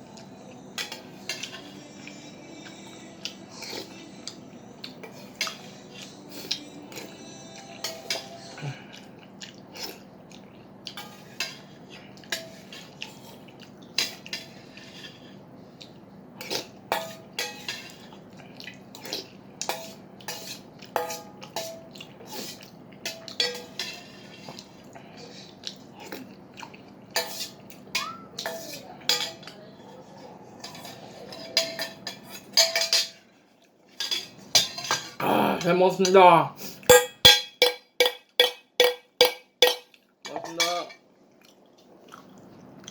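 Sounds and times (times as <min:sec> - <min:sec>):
faint steady hum: 0:00.0 - 0:42.9
utensils clinking on a bowl: 0:00.2 - 0:04.4, 0:05.0 - 0:09.0, 0:16.9 - 0:18.1, 0:19.6 - 0:24.6, 0:27.1 - 0:33.3, 0:33.9 - 0:36.2, 0:36.9 - 0:41.1.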